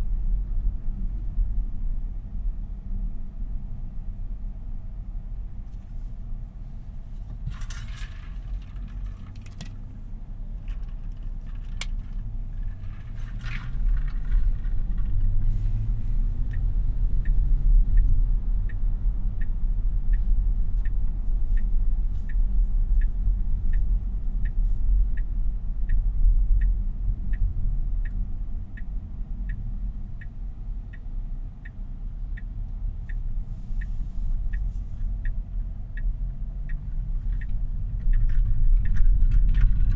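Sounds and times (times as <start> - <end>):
road and tyre rumble: 0.0 - 39.9
turn signal ticking: 5.5 - 39.9
scraping rustles: 7.2 - 9.8, 10.6 - 15.9.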